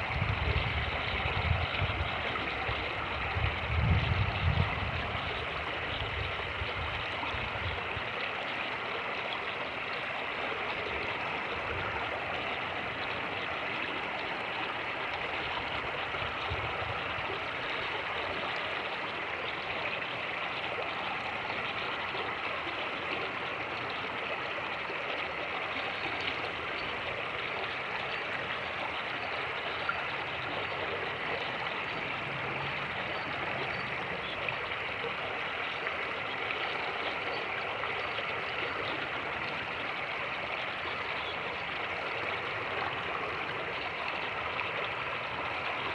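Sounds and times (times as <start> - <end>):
wind rumble on microphone: 0.0 - 8.1, 15.8 - 17.3
creek rushing: 4.8 - 45.9.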